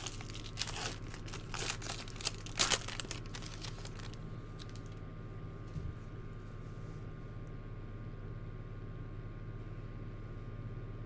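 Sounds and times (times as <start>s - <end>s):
wrapper crinkling: 0.0s - 5.0s.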